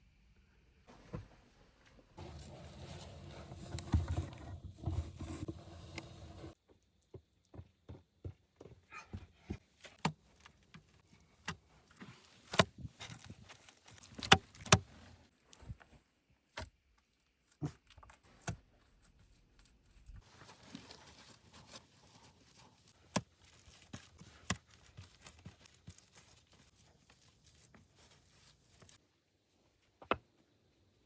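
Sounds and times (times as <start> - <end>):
rustling and crackling: 2.2 - 6.6, 9.6 - 16.1, 18.1 - 30.0.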